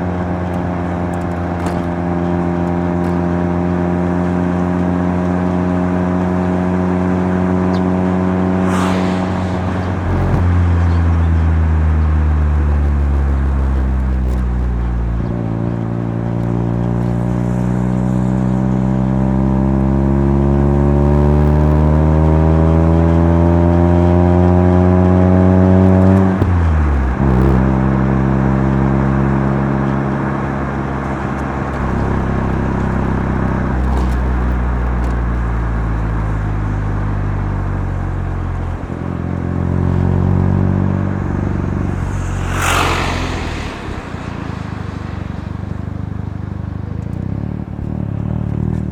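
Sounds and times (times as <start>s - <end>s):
rotary engine accelerating: 0.0s - 48.9s
short sharp burst of noise: 8.5s - 11.1s, 41.2s - 46.6s.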